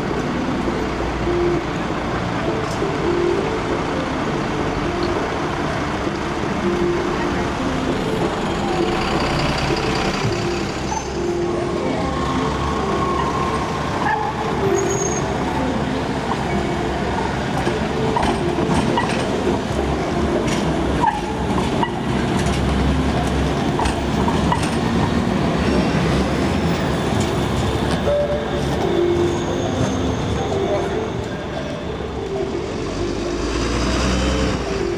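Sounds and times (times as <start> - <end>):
scattered clicks and knocks: 17.5 - 25.3.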